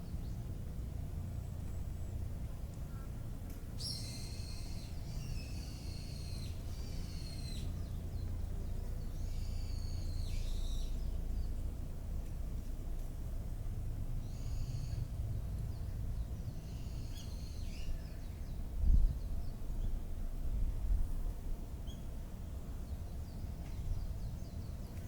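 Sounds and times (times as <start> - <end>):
bird singing whistled notes: 3.8 - 8.0, 9.1 - 11.2, 16.6 - 19.9
steady low rumble: 6.4 - 25.0.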